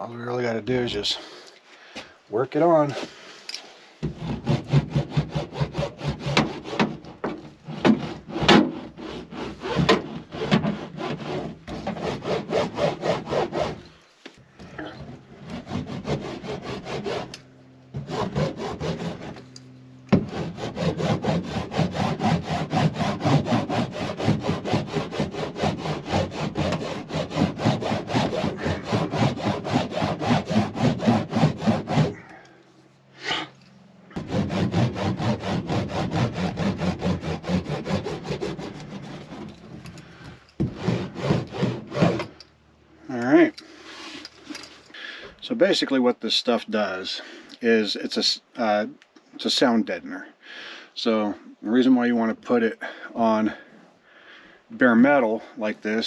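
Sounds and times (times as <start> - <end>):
hand roller rubbing on metal: 4.1 - 14.0, 14.7 - 32.3, 34.2 - 39.8, 40.6 - 42.4.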